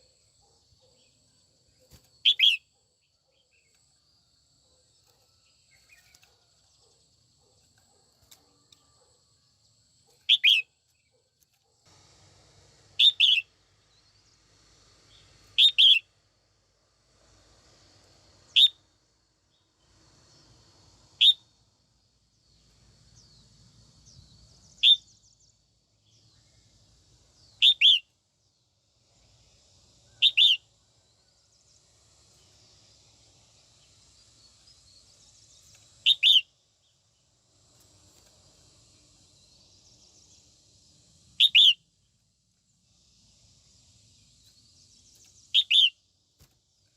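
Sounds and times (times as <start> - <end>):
bird giving sharp calls: 41.4 - 41.8, 45.6 - 45.9.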